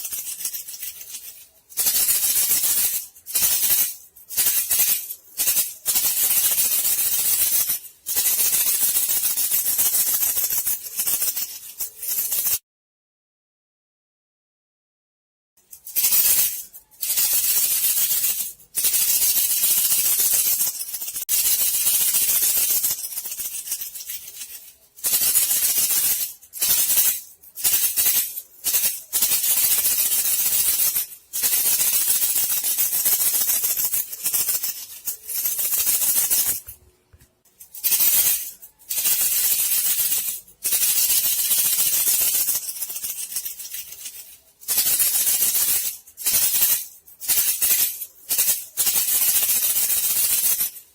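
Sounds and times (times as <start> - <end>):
rattle shaking: 0.0 - 12.6, 15.6 - 50.9.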